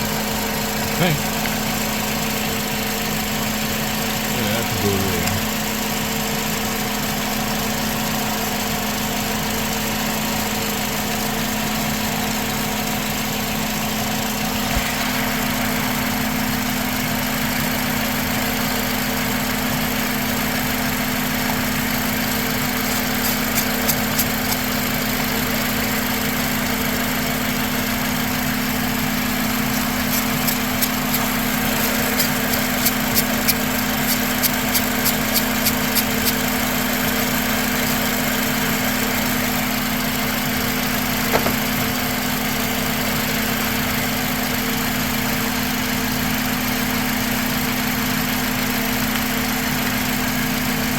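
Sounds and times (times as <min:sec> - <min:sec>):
mechanical hum: 0:14.4 - 0:18.4, 0:21.6 - 0:25.1, 0:28.7 - 0:39.2.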